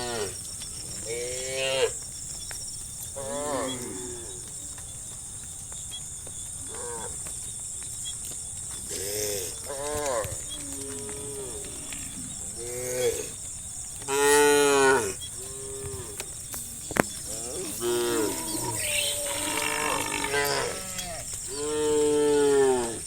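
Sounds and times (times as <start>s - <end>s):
cattle mooing: 8.9s - 13.4s, 14.1s - 23.0s.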